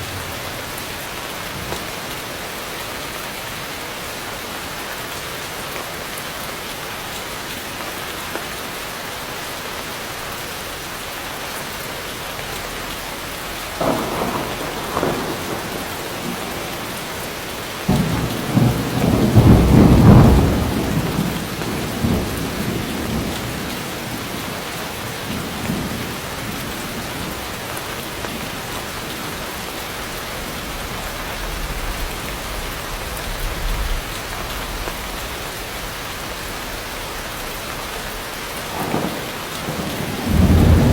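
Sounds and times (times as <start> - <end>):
heavy rain falling: 0.0 - 40.9
thunder: 13.7 - 24.6, 30.6 - 40.9.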